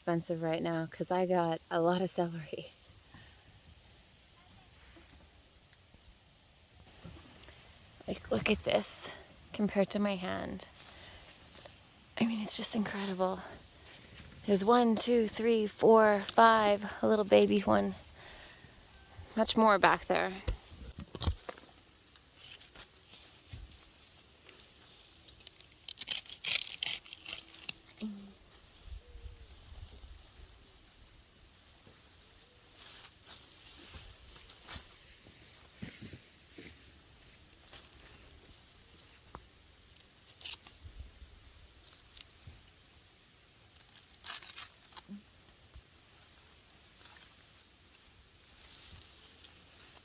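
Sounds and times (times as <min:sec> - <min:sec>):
rustling leafy plants: 0:06.9 - 0:18.6, 0:19.3 - 0:50.0
celery stalks crackling and tearing: 0:10.6 - 0:14.1, 0:14.7 - 0:18.5, 0:21.0 - 0:50.0.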